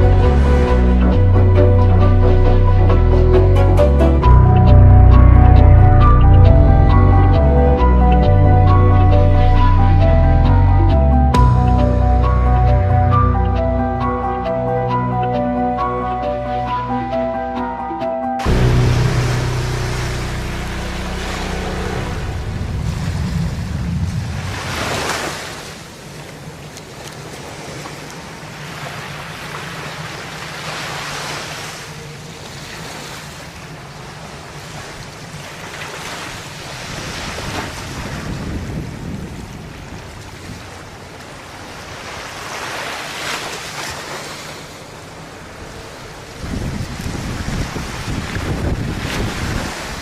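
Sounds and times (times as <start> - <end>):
sea water rushing: 0.0 - 50.0
wind buffeting microphone: 18.4 - 25.4, 36.7 - 42.2, 45.2 - 50.0.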